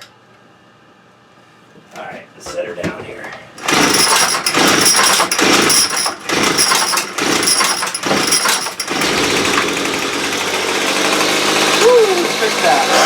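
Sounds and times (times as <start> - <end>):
two-stroke engine revving: 3.6 - 13.0.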